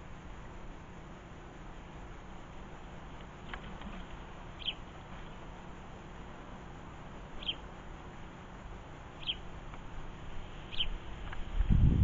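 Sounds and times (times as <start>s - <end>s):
low background noise: 0.0s - 12.0s
small bird chirping: 3.4s - 5.4s, 7.3s - 7.8s, 9.1s - 9.8s, 10.7s - 11.4s.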